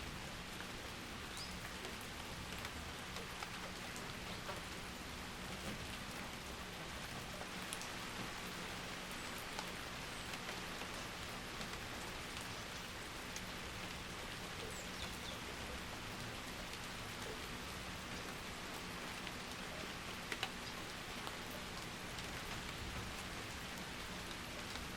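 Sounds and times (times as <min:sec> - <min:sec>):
steady rain falling: 0:00.0 - 0:24.9.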